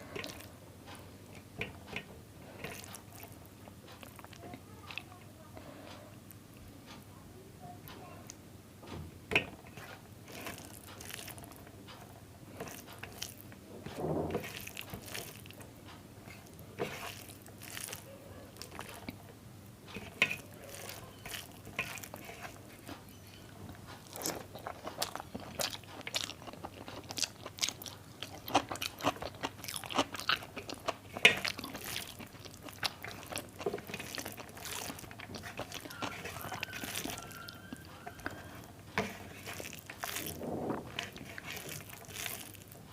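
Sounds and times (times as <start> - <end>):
chewing with wet mouth clicks: 0.0 - 5.1, 9.7 - 13.6, 14.4 - 19.2, 19.9 - 42.9
crisp crunches: 10.3 - 11.6, 14.4 - 15.6, 16.8 - 19.1, 20.3 - 22.6, 24.0 - 42.9.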